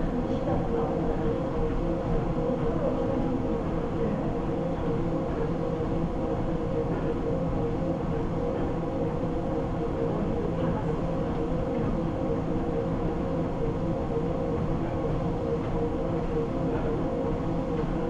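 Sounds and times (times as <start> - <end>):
treadmill belt rumble: 0.0 - 18.0
treadmill motor hum and whine: 0.0 - 18.0.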